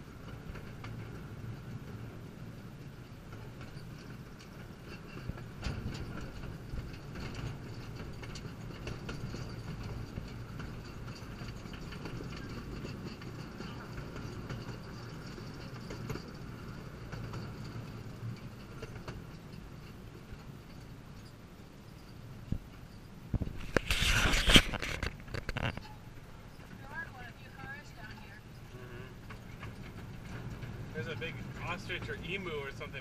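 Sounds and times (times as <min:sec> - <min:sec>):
train wheels rumbling on track: 0:00.0 - 0:33.0.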